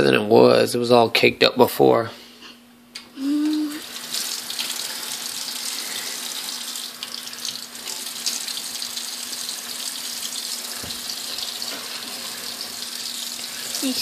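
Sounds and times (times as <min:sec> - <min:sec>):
tap water running into sink: 0:03.5 - 0:14.0.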